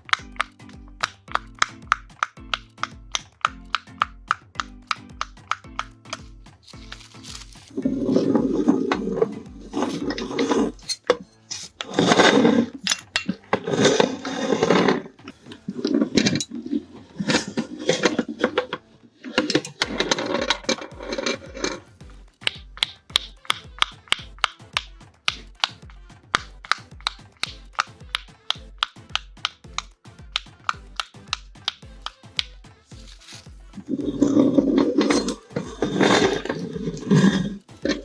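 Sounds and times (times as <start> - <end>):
sharp clicks: 0.0 - 6.3, 22.3 - 32.6
background music with low beat: 0.0 - 38.0
meat grinder grinding silicone: 33.0 - 38.0.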